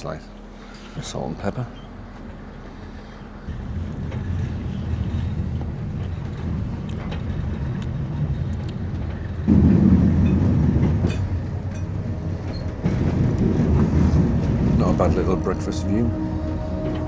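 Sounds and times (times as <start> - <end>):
train wheels rumbling on rails: 0.0 - 17.0
faint rattles and clicks: 3.5 - 14.6.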